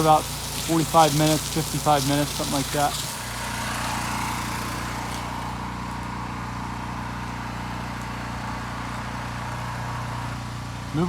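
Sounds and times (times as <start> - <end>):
water spray hissing: 0.0 - 5.6
pressure washer engine running: 0.0 - 11.0.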